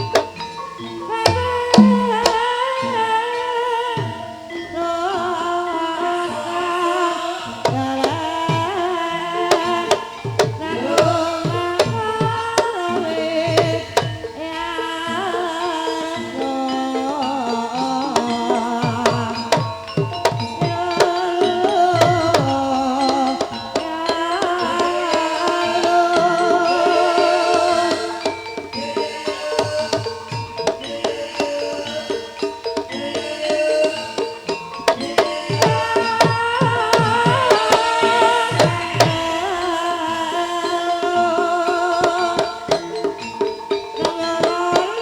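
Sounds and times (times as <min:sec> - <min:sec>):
bright metallic ring: 0:00.0 - 0:03.0
hand drums: 0:00.0 - 0:45.0
wavering melody: 0:00.0 - 0:45.0.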